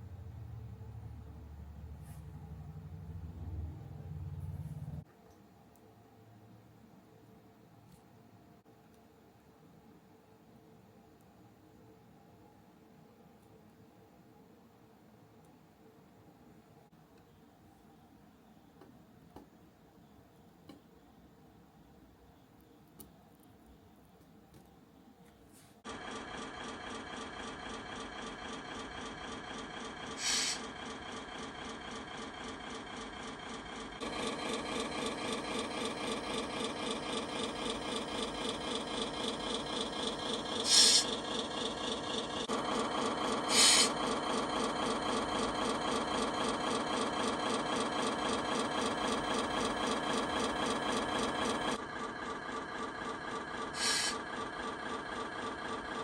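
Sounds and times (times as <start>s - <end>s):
truck engine buzzing: 0.0s - 5.0s, 25.9s - 56.0s
short hisses: 30.2s - 30.6s, 40.6s - 41.1s, 43.5s - 43.9s, 53.8s - 54.2s.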